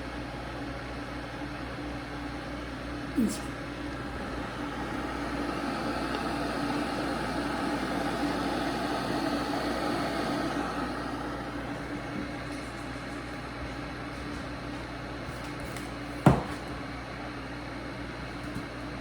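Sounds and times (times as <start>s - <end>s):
electric kettle heating water: 0.0s - 15.2s.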